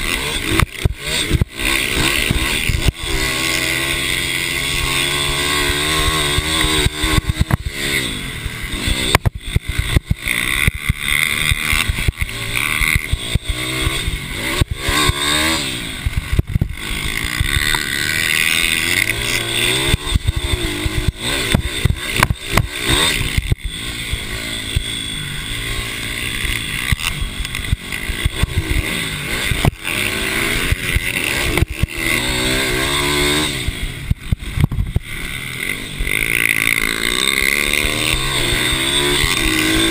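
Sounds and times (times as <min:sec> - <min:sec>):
sharp cracks and knocks: 0:00.0 - 0:07.8, 0:08.8 - 0:24.9, 0:26.3 - 0:32.6
mini bike engines revving: 0:00.0 - 0:39.9.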